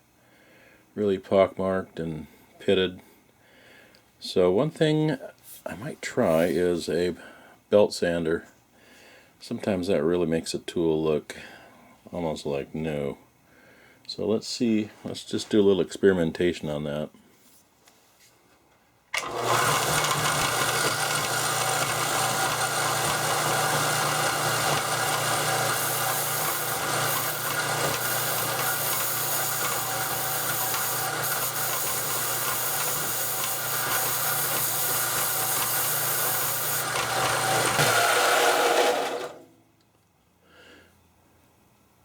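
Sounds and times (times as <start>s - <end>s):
belt sander grinding metal: 19.2s - 39.5s.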